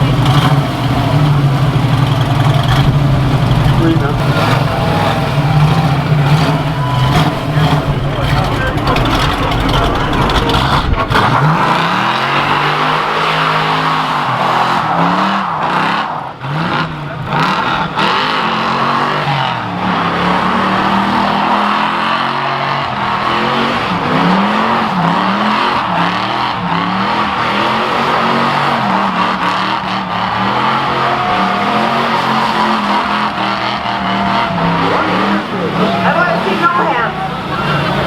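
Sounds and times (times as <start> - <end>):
car engine revving: 0.0 - 38.0
tyres squealing: 0.0 - 38.0.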